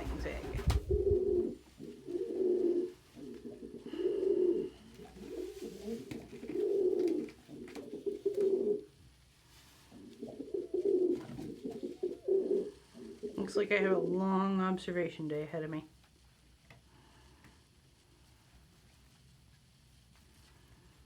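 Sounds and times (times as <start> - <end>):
pigeons cooing: 0.0 - 9.0, 9.9 - 13.6.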